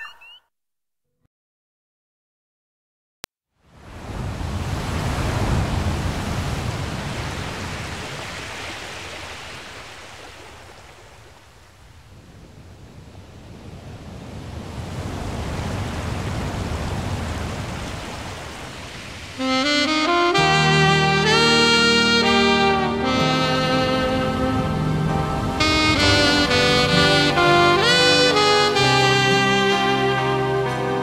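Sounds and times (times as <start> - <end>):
ocean surf washing ashore: 3.7 - 30.8.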